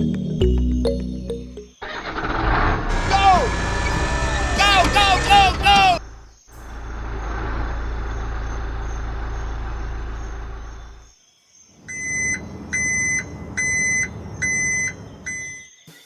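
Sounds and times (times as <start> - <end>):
low engine rumble: 2.5 - 11.1
reversing alarm beeping: 2.9 - 6.0, 11.9 - 15.7
small motor running: 2.9 - 6.0.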